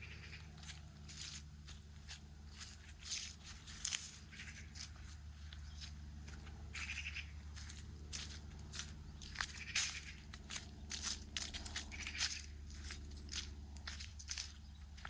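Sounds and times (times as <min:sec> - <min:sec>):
footsteps crunching on gravel: 0:00.0 - 0:15.0
steady low hum: 0:00.0 - 0:15.0.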